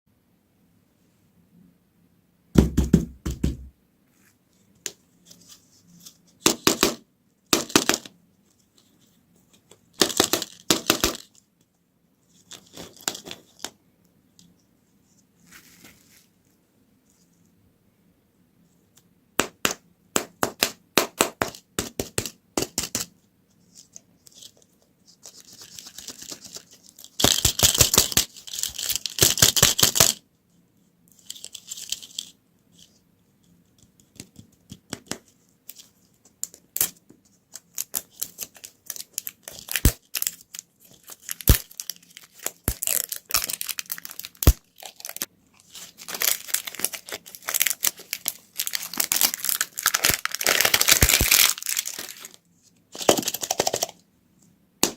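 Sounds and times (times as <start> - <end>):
plastic packaging crinkling: 25.2 - 30.2, 37.5 - 52.4.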